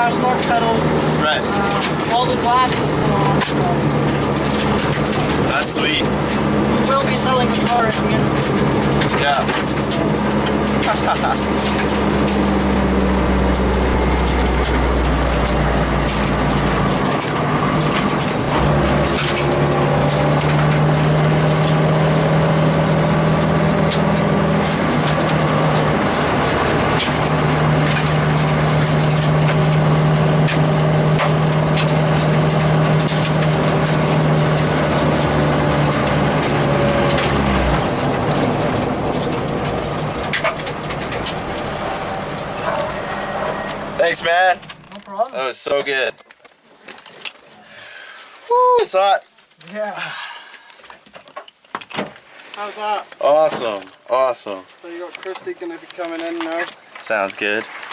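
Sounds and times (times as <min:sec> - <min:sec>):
rally car engine running hard: 0:00.0 - 0:44.8
gravel pelting car: 0:00.0 - 0:46.8, 0:52.1 - 0:57.9.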